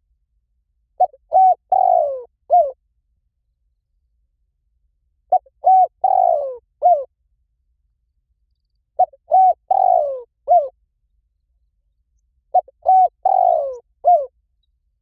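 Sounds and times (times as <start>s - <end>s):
dove cooing: 1.0s - 2.8s, 5.3s - 7.1s, 9.0s - 10.8s, 12.5s - 14.3s.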